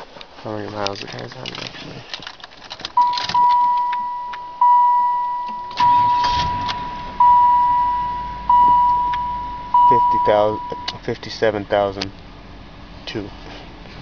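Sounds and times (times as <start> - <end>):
clicks: 0.8 - 4.5, 8.6 - 9.3
car warning chime ding: 3.0 - 11.0
low rumble: 5.8 - 11.0.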